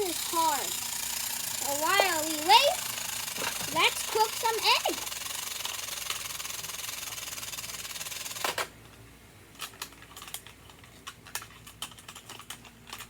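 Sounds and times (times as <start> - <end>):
toy electronic hiss: 0.0 - 8.3
plastic toy pieces clicking: 9.6 - 13.0.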